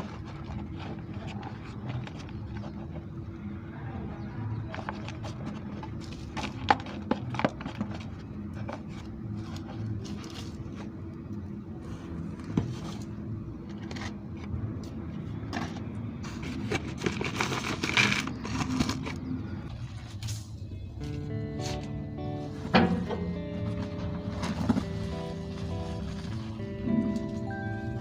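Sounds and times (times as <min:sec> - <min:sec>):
objects scraping and rustling: 0:00.0 - 0:03.2, 0:04.6 - 0:11.0, 0:11.8 - 0:21.8
low steady hum: 0:20.6 - 0:28.0.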